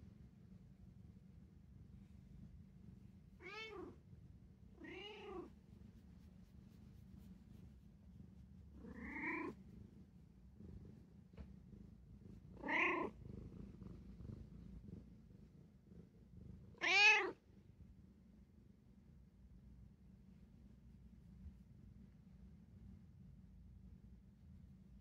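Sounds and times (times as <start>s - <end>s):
cat meowing: 3.4s - 4.0s, 4.8s - 5.5s, 16.8s - 17.4s.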